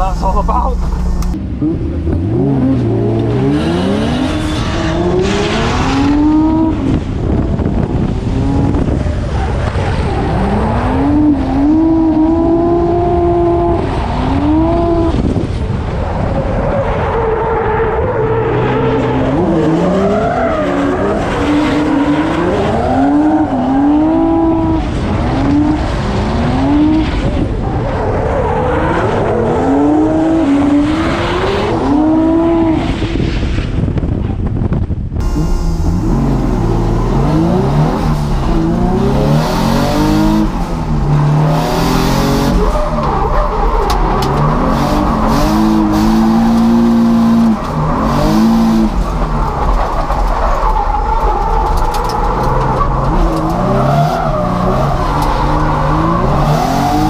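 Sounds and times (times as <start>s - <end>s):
car engine revving hard: 0.3s - 15.3s, 35.2s - 50.1s, 53.0s - 57.0s.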